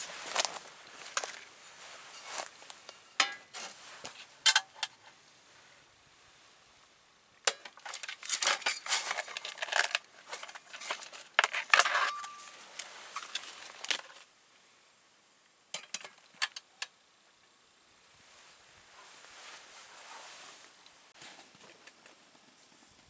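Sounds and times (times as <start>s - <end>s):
camp cookware clinking: 0.0s - 5.2s, 7.5s - 14.2s, 15.7s - 16.9s.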